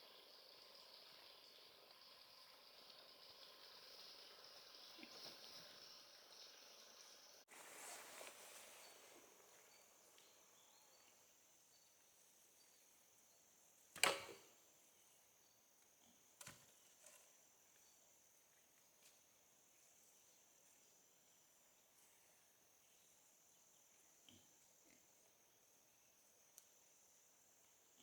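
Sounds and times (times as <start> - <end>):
faint high chirps: 0.0 - 13.6
background hiss: 0.0 - 28.0.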